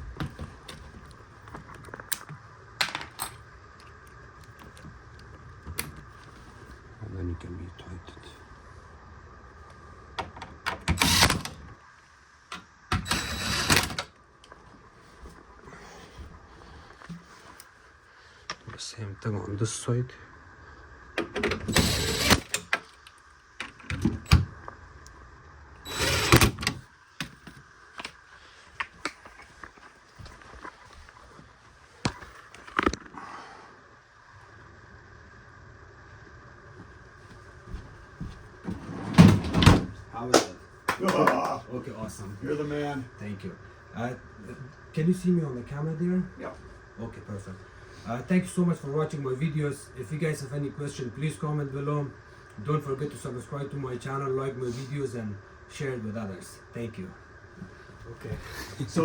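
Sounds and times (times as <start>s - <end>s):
faint steady hum: 0.0s - 59.0s
power driver running: 9.6s - 11.8s, 12.5s - 14.2s, 21.1s - 25.2s, 25.8s - 26.9s.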